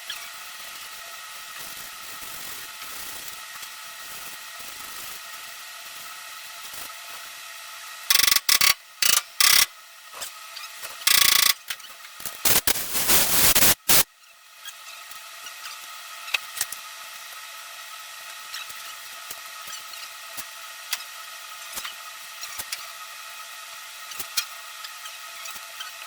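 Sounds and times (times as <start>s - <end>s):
power tool short bursts: 8.1s - 9.7s, 11.0s - 11.6s.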